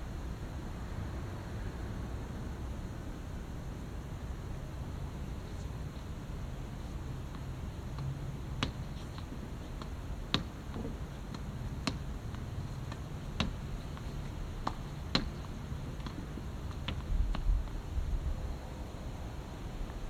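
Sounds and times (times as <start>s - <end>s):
low background hum: 0.0s - 20.0s
racket hitting shuttlecock: 7.2s - 17.0s.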